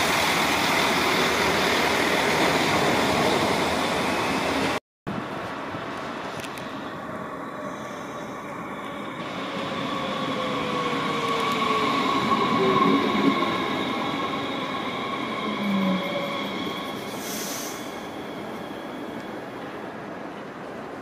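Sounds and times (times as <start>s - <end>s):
high brake squeal: 11.8s - 19.5s
short air hiss: 17.1s - 17.9s.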